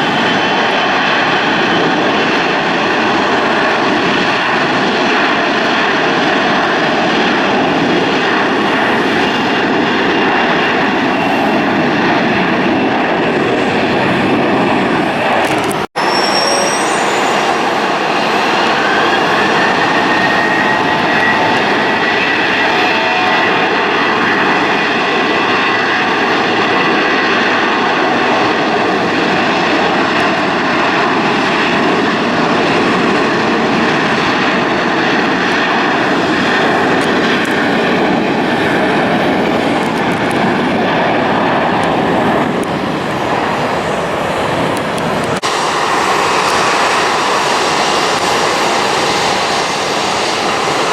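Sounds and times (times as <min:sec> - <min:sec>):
jet engines roaring: 0:00.0 - 0:50.9
thin engine whine: 0:13.5 - 0:24.6.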